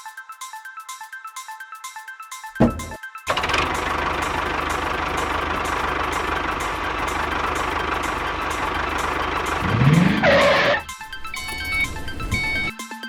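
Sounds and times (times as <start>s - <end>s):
music with plucked tones: 2.6s - 12.8s
small motor running: 3.3s - 11.8s.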